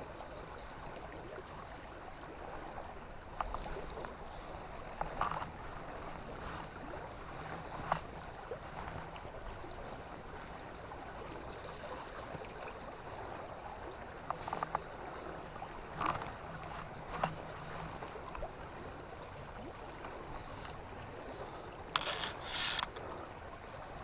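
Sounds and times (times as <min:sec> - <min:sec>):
river water running: 0:00.0 - 0:24.0
short sharp clicks: 0:22.0 - 0:23.0.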